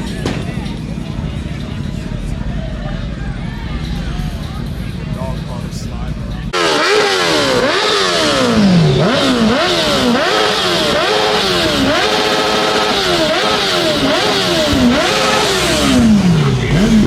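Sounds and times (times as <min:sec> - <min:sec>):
raspy exhaust: 0:00.0 - 0:17.0
engine revving: 0:03.8 - 0:17.0.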